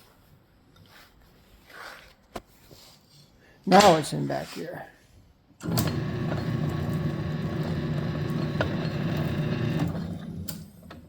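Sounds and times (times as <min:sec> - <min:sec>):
metal lathe running: 0:05.6 - 0:10.5.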